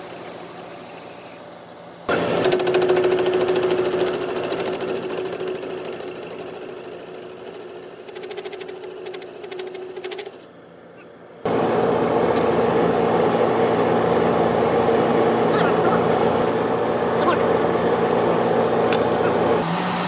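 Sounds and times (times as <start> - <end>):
steady machine noise: 0.0 - 1.4, 2.1 - 10.5
fast-pulsing power tool: 2.1 - 10.5.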